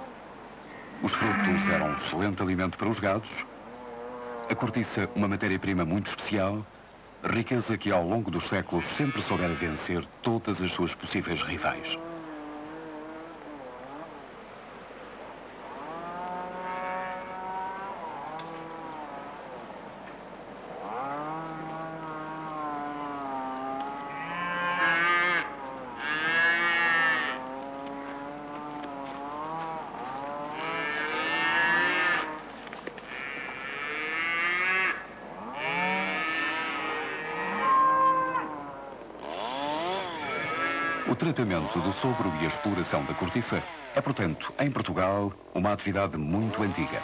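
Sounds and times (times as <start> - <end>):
cattle mooing: 1.0 - 2.3, 15.7 - 19.6, 20.7 - 32.5, 33.1 - 44.2.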